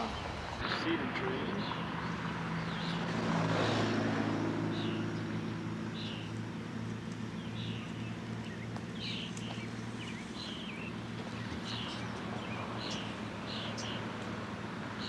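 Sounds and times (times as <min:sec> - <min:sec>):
low engine-like hum: 0:00.0 - 0:15.0
bird chirping: 0:07.3 - 0:14.2.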